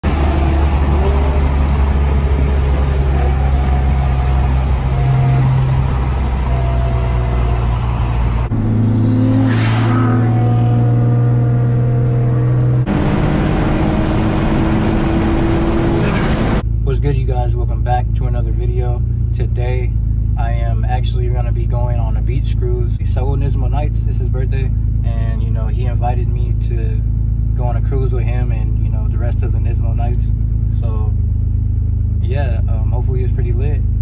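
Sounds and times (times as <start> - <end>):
car engine droning: 0.0 - 34.0
brief whoosh: 8.4 - 11.1.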